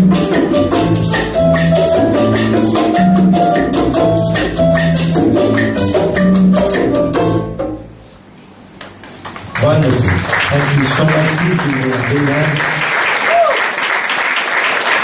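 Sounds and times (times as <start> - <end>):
salsa band playing: 0.0 - 8.3.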